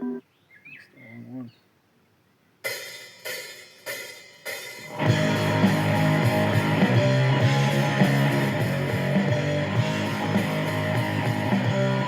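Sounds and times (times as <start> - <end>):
drum and cymbal crashes: 2.7 - 12.0
rock band playing: 4.8 - 12.0.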